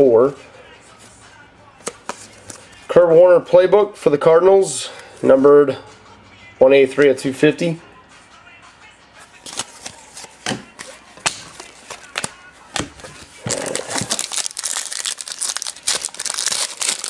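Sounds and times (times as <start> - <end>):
wrapper tearing and crinkling: 13.4 - 17.0.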